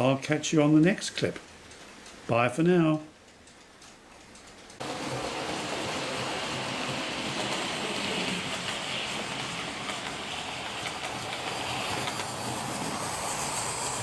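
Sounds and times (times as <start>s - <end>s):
model train running on track: 4.7s - 14.0s.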